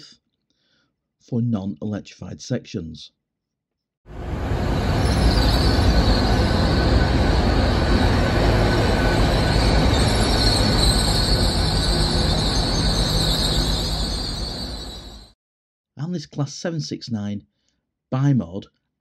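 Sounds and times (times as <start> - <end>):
train wheels rumbling: 4.1 - 15.3.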